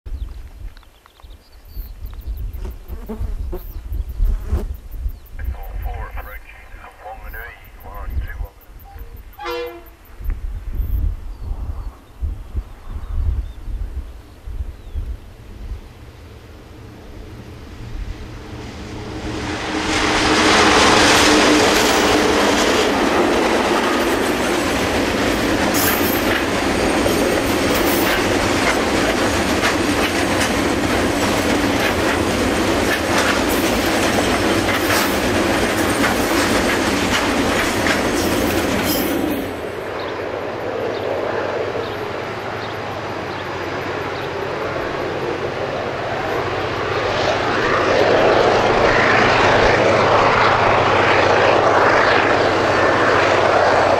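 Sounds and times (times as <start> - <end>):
locomotive engines running: 21.0 - 40.0.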